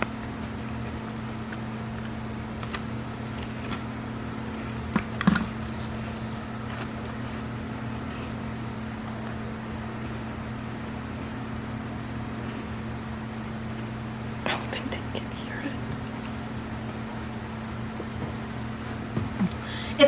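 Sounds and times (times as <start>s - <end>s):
steady low hum: 0.0s - 20.0s
crunchy cookie chewing: 0.2s - 10.1s.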